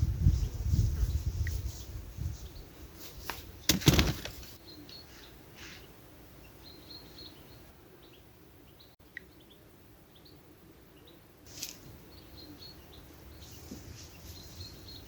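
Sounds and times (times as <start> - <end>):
faint small birds chirping: 0.2 - 15.0
sharp rustling knocks: 3.2 - 4.6.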